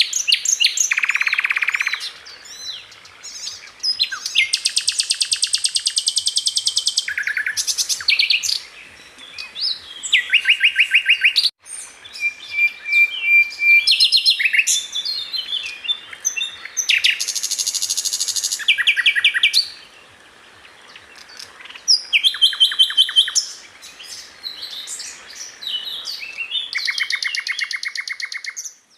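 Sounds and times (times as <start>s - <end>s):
flycatcher singing trills: 0.0s - 28.9s.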